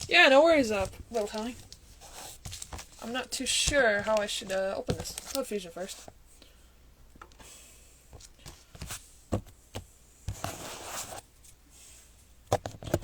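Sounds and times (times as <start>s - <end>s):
packaging rustle: 0.0s - 6.1s
light taps and knocks on packs: 0.0s - 6.2s, 8.1s - 10.6s.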